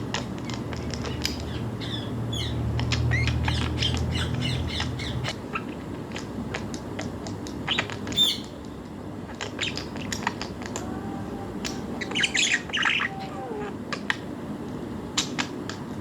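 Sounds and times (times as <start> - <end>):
budgerigars chirping and squawking: 0.0 - 5.8, 7.7 - 8.6, 9.3 - 10.8, 11.7 - 13.7.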